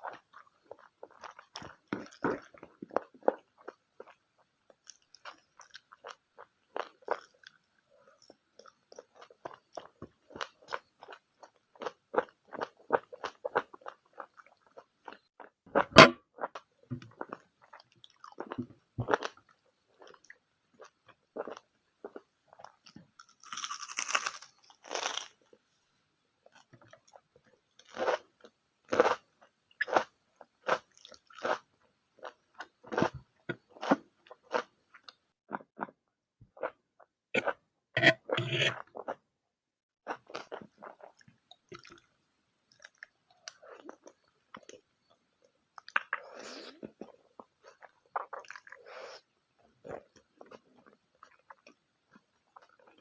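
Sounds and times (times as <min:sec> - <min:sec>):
chewing and biting food: 0:21.4 - 0:25.4, 0:45.8 - 0:48.8.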